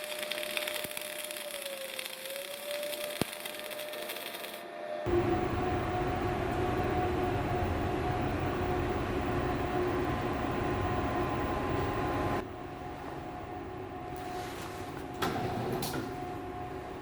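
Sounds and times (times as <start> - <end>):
welding arc crackling: 0.0 - 12.4
mechanical hum with low rumble: 0.0 - 17.0.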